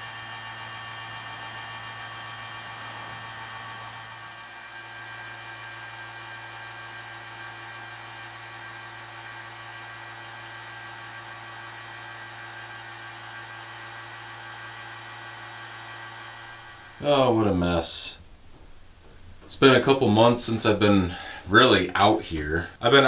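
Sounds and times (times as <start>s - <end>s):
machine hum and whir: 16.5s - 22.4s.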